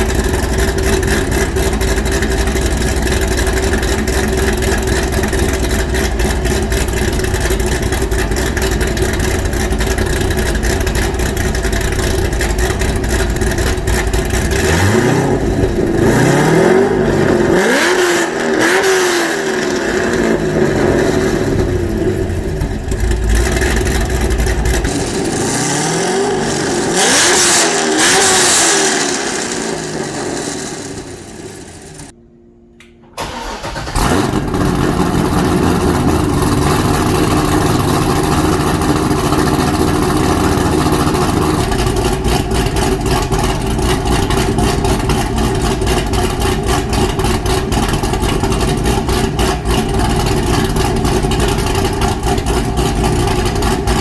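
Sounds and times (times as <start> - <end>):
car engine revving: 0.0 - 32.1, 33.2 - 54.0
car engine running steadily: 0.0 - 32.2, 33.8 - 54.0
car engine starting: 0.0 - 32.2, 32.8 - 54.0.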